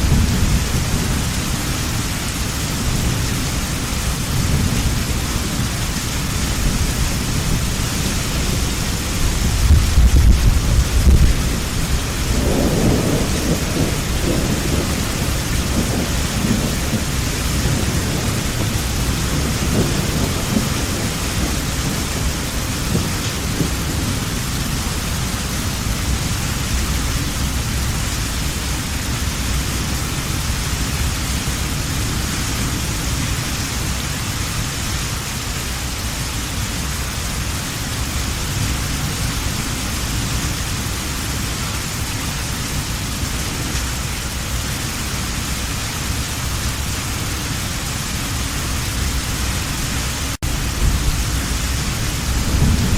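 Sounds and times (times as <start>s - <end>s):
thunder rumbling: 0.0s - 34.2s, 46.0s - 52.9s
heavy rain: 0.0s - 52.9s.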